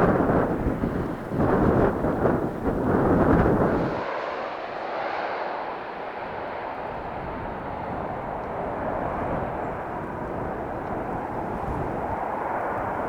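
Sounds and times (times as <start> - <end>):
aircraft engines roaring: 0.0 - 13.0.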